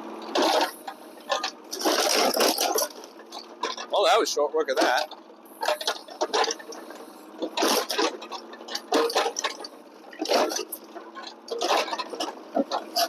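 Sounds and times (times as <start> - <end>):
excavator engine hum: 0.0 - 13.0
wood crunching and cracking: 1.3 - 3.9.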